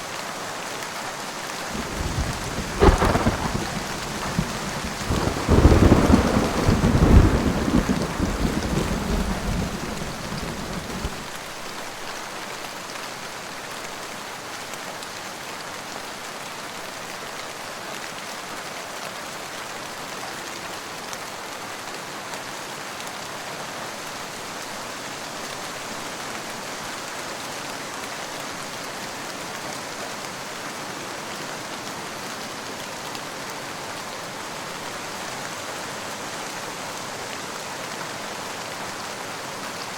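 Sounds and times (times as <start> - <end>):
steady rain: 0.0 - 39.9
thunder rumble: 1.7 - 11.4.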